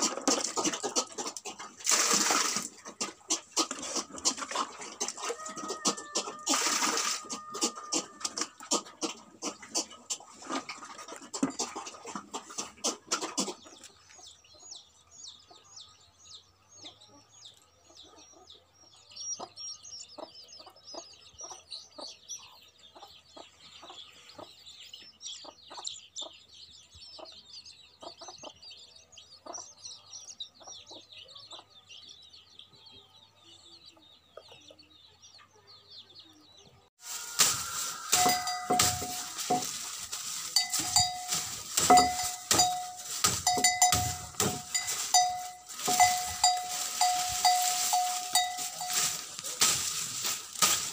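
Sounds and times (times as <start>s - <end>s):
chickens clucking: 0.0s - 15.8s, 16.6s - 26.5s, 27.2s - 50.9s
small birds chirping: 0.0s - 50.9s
knocking and rustling: 37.0s - 50.9s
repeated ringing tone: 37.2s - 39.8s, 40.6s - 49.2s.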